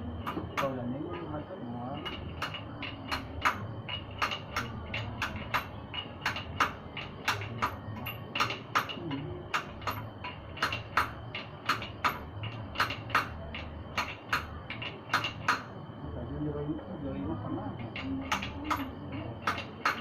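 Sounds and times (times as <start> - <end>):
metallic tool clicks and clinks: 17.8 - 20.0.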